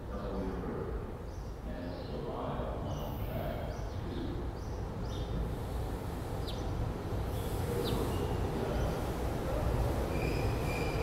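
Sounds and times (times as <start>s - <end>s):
train rumbling: 4.8s - 11.0s.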